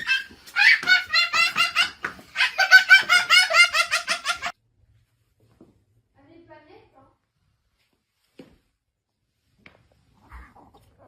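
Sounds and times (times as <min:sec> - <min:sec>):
child laughing: 0:00.0 - 0:04.5.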